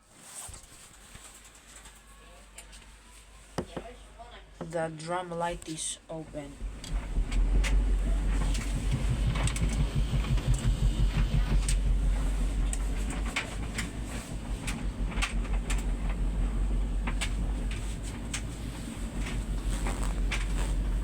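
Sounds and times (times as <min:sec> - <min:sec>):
tumble dryer drum rumbling: 0:06.6 - 0:21.0.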